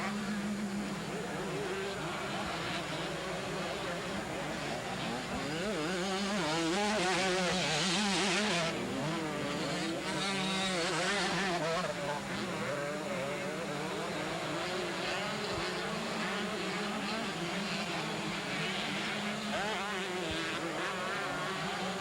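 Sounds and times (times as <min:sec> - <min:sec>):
motocross bikes revving: 0:00.0 - 0:22.0.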